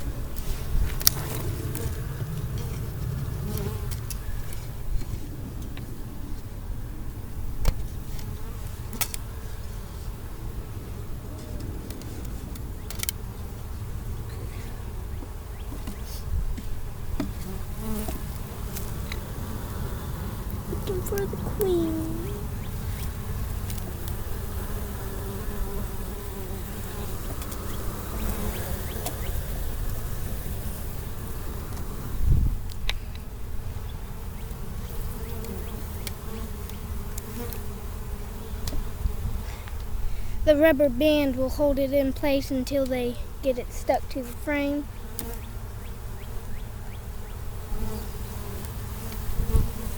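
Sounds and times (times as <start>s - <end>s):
honey bees buzzing: 0.0s - 49.9s.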